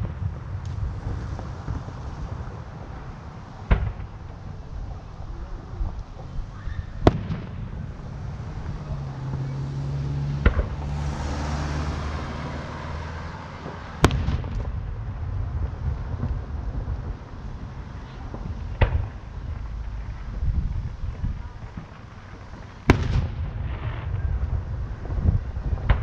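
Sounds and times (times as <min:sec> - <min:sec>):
firework shells booming: 0:00.0 - 0:09.6, 0:10.3 - 0:26.0
car engine running low: 0:07.6 - 0:26.0.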